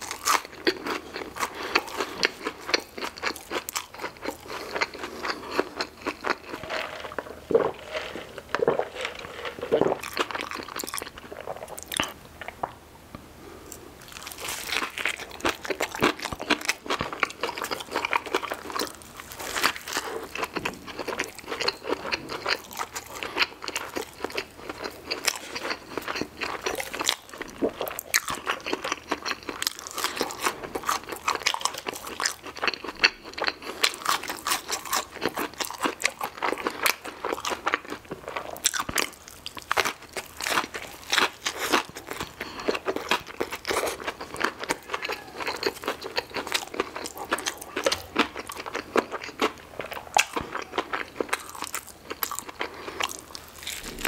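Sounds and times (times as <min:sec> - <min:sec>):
crunching crispy fried chicken: 0:00.0 - 0:12.2, 0:14.0 - 0:54.0
wet mouth sounds: 0:52.2 - 0:54.0.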